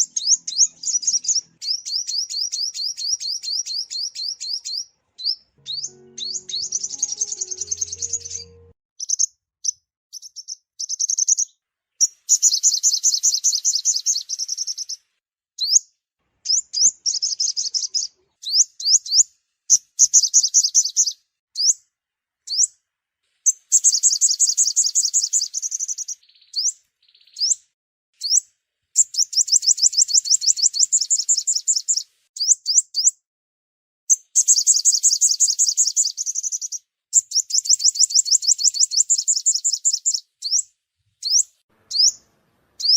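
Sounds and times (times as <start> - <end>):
sunbird trills and chirps: 0.0 - 9.3, 23.5 - 27.6, 34.1 - 42.2.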